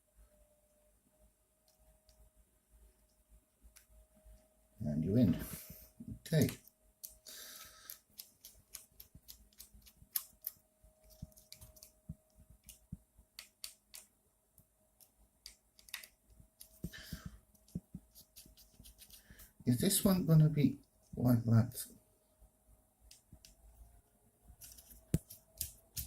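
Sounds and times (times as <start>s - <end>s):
faint steady hum: 0.0s - 26.0s
plastic parts clicking and tapping: 6.3s - 14.1s, 15.0s - 19.1s.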